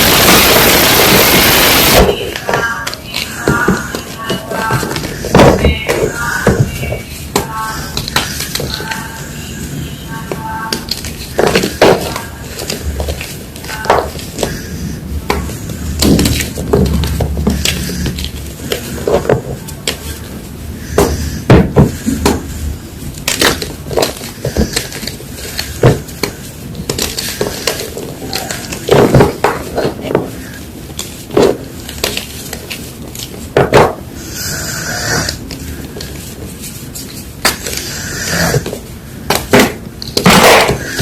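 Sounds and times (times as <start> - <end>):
crumbling hiss: 0.0 - 2.3.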